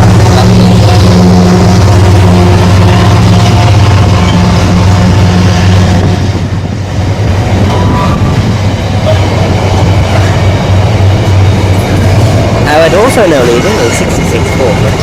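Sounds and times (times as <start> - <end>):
diesel locomotive engine drone: 0.0 - 15.0
rail wagons clattering: 6.0 - 15.0.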